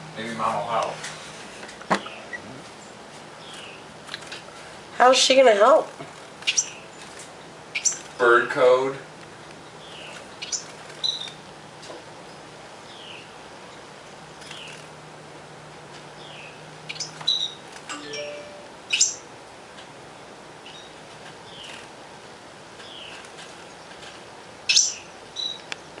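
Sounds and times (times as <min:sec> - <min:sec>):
small birds chirping: 0:01.5 - 0:15.0, 0:16.0 - 0:17.8, 0:18.9 - 0:19.3, 0:20.6 - 0:21.9, 0:22.7 - 0:26.0.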